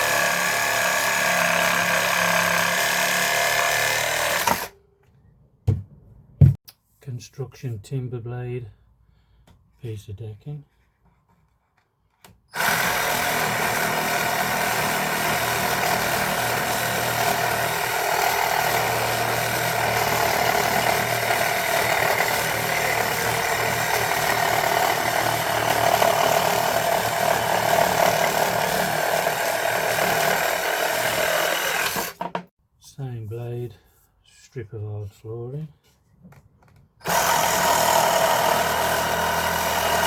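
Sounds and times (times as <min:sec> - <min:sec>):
reciprocating saw cutting wood: 0:00.0 - 0:04.7, 0:12.6 - 0:32.5, 0:37.0 - 0:40.0.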